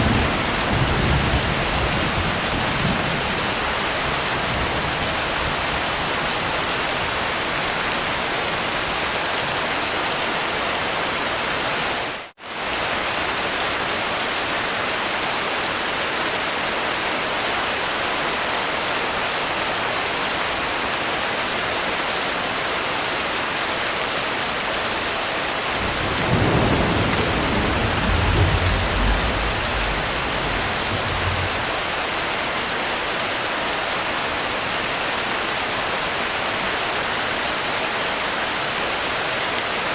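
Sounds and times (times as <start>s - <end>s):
thunder rumbling: 0.0s - 7.1s, 25.7s - 32.5s
rain hiss: 0.0s - 39.9s.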